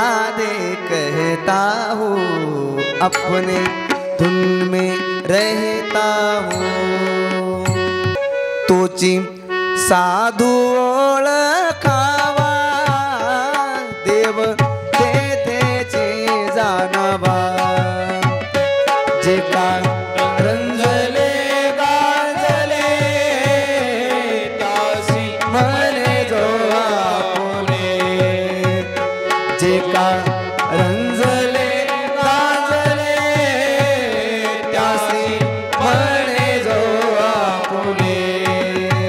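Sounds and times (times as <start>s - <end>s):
gliding melody line: 3.0s - 9.2s
sustained held tones: 3.1s - 8.6s
hand drum rhythm: 6.5s - 8.2s, 14.1s - 21.4s, 27.4s - 37.1s.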